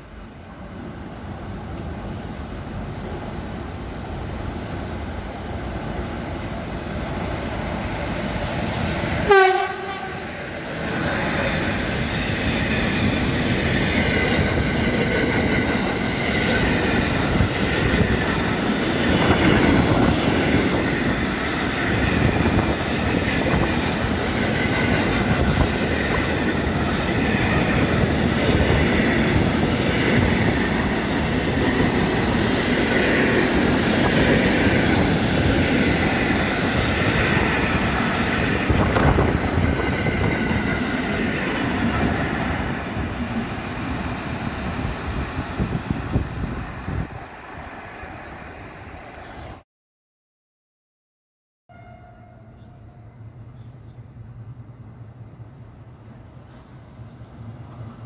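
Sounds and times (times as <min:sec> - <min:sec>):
freight train passing on rails: 0:00.0 - 0:49.6, 0:51.7 - 0:58.0
train horn blast: 0:09.2 - 0:10.3, 0:51.7 - 0:53.3.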